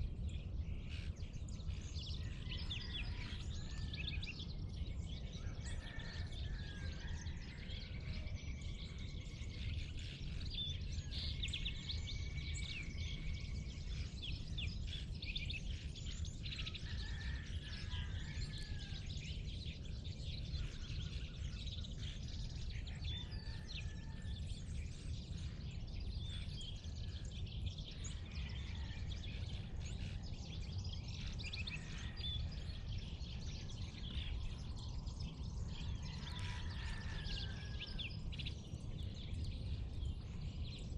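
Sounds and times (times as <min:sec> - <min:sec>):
steady low rumble: 0:06.3 - 0:17.9, 0:24.2 - 0:40.9
birds chirping and whistling: 0:06.9 - 0:40.9.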